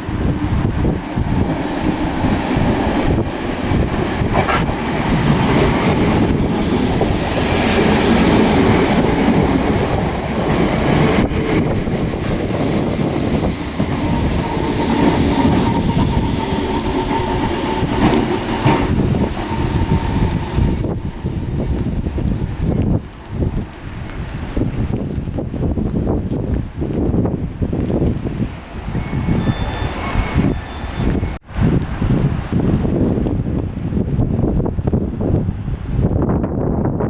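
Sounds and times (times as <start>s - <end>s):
electric train running: 0.0s - 23.0s
high wheel squeal: 9.3s - 10.8s, 14.0s - 21.7s, 28.9s - 31.4s.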